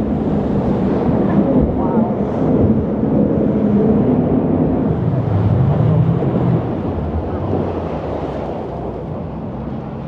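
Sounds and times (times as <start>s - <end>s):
wind on microphone: 0.0s - 10.0s
boat engine running hard: 1.0s - 10.0s
rushing water: 5.0s - 9.3s.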